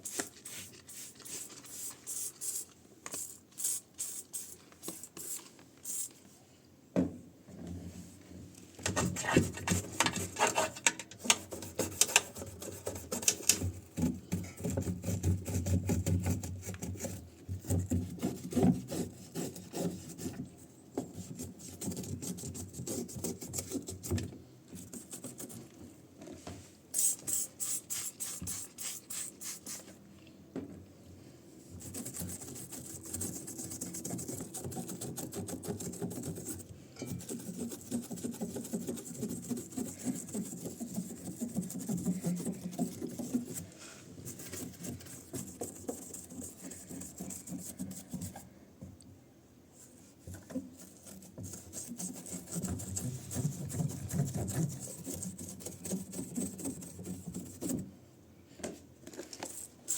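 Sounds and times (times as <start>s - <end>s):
hand rubbing and scraping: 8.9s - 17.1s, 31.6s - 48.5s.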